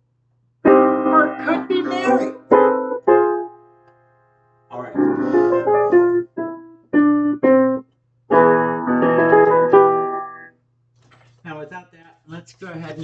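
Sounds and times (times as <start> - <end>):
piano chords: 0.6 - 10.6.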